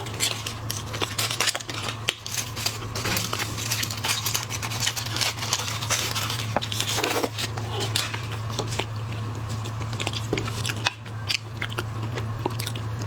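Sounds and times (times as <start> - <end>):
shellfish shells clicking and crackling: 0.0 - 13.0
steady low hum: 0.0 - 13.0.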